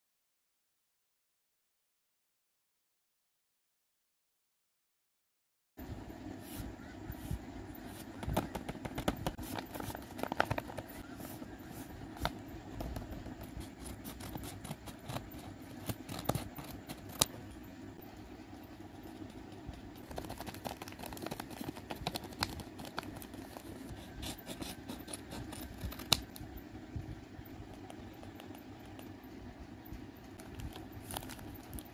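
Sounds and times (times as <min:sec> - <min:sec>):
low background hum: 0:05.8 - 0:31.9
paper crinkling: 0:07.8 - 0:17.4, 0:19.0 - 0:26.4, 0:30.4 - 0:31.9.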